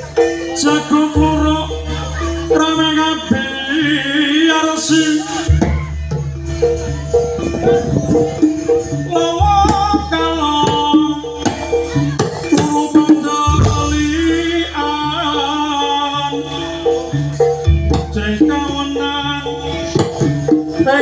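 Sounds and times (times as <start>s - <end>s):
drums: 0.0s - 21.0s
pitched percussion pattern: 0.0s - 21.0s
wavering melody: 0.0s - 21.0s
deep low tones: 5.5s - 12.3s.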